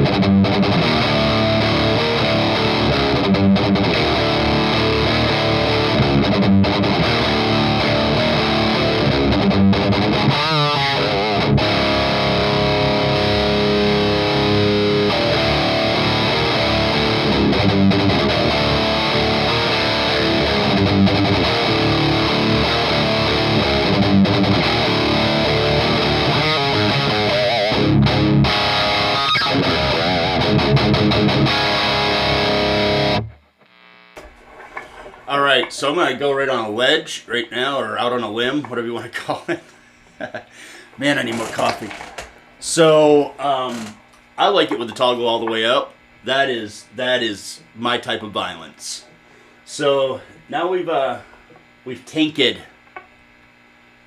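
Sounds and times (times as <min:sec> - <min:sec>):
distorted electric guitar riffing: 0:00.0 - 0:36.9.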